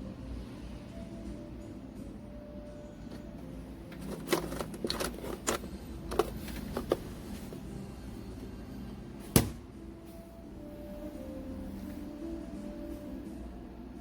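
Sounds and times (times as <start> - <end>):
objects clicking and knocking: 3.9 - 7.2.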